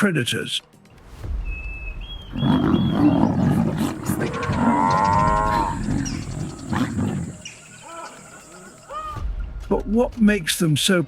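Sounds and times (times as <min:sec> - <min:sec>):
lions growling and snarling: 0:02.3 - 0:07.6
lion long drawn-out call: 0:02.4 - 0:07.4.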